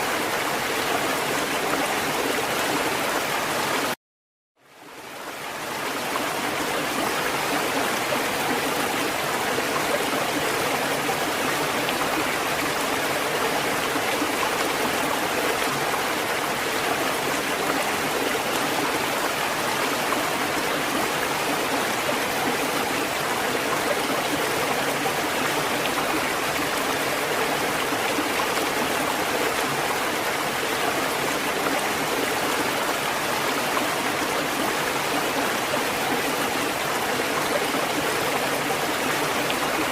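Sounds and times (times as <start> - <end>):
rushing water: 0.0 - 4.0, 4.6 - 39.9.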